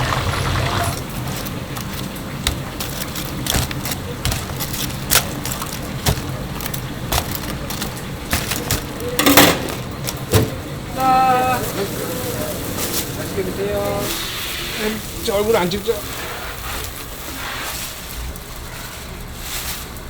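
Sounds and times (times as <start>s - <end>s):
dense clatter: 0.0s - 10.7s
sharp kitchen knocks and clacks: 0.6s - 10.6s.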